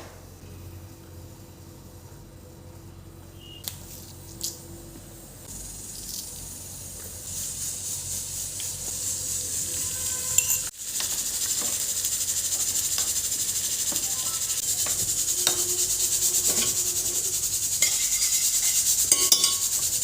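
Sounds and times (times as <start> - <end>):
food sizzling in a pan: 5.4 - 20.0.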